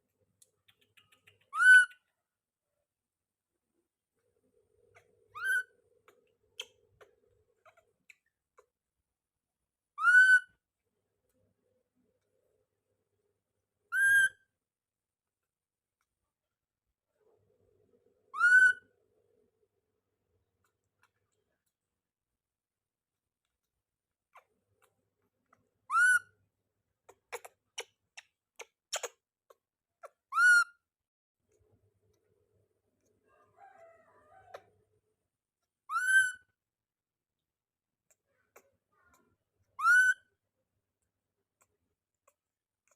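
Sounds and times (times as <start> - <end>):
faint clicks: 0.3 - 2.0
monkey whistle-like calls: 1.5 - 2.0, 10.0 - 10.5, 13.9 - 14.4, 18.4 - 18.8, 25.9 - 26.3, 30.3 - 30.7, 35.9 - 36.5, 39.8 - 40.2.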